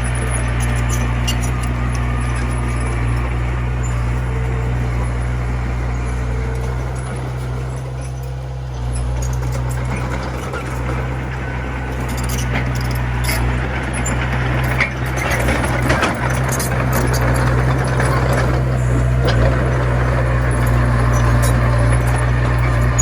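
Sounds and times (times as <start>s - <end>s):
bulldozer engine running: 0.0s - 23.0s
metallic clanks and rattles: 0.0s - 23.0s.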